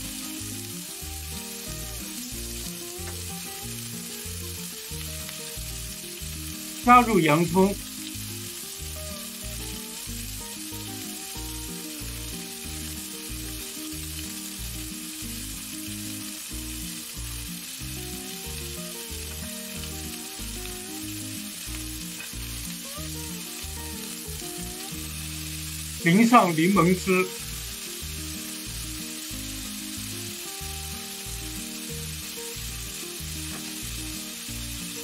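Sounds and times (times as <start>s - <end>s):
background music: 0.0s - 35.0s
meat sizzling in frying pan: 0.0s - 35.0s.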